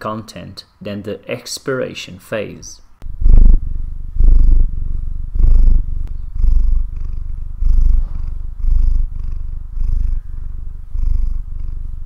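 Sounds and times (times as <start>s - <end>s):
cat purring: 3.0s - 12.0s.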